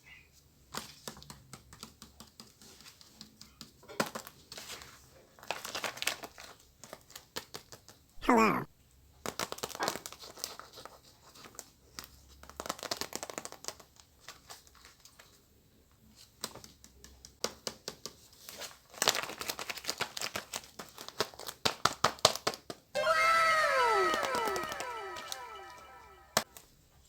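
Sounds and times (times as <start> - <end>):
falling pitched tones: 23.0 - 26.4.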